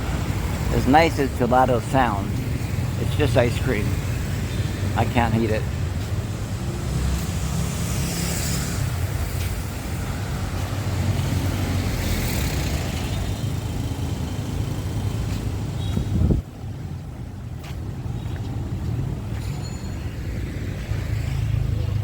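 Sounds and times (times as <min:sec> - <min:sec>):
traffic rumbling past: 0:00.0 - 0:22.0.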